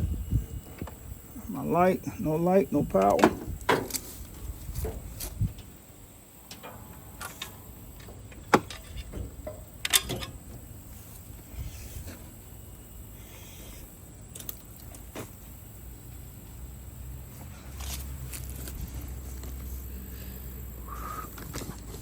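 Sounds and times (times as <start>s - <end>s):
low steady hum: 0.0s - 22.0s
metal tools clicking and clanking: 8.4s - 10.4s.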